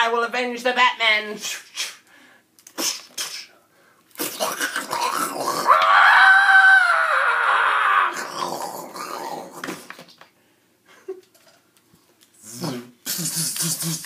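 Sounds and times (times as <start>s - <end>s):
man screaming: 5.6s - 8.3s.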